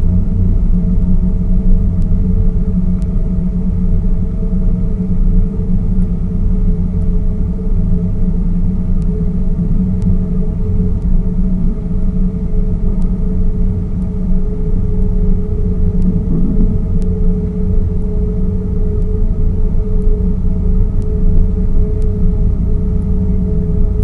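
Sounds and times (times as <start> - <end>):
boat motor humming: 14.4 - 20.0.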